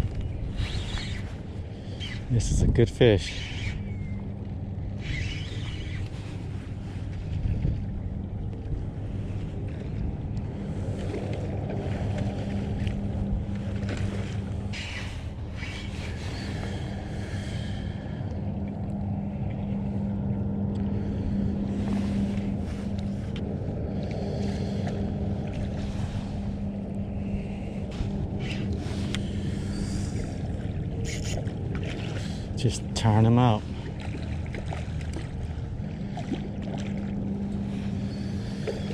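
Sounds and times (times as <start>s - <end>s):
steady low hum: 0.0s - 38.9s
wind rumbling on microphone: 0.0s - 38.9s
water splashes: 28.6s - 38.9s.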